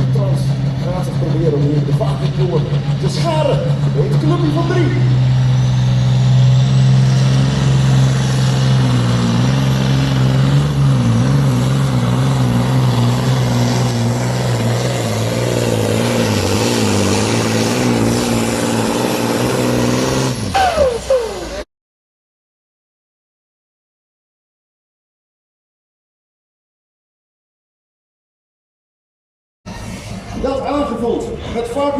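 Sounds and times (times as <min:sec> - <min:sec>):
diesel truck engine under load: 0:00.0 - 0:21.7.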